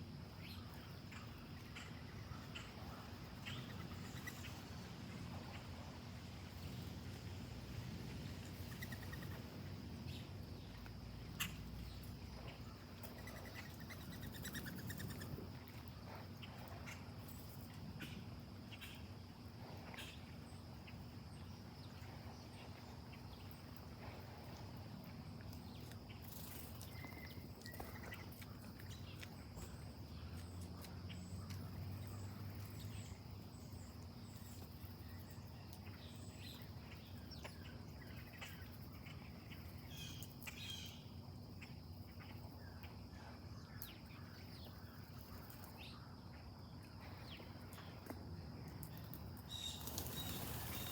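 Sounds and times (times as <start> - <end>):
high insect drone: 49.5 - 50.9.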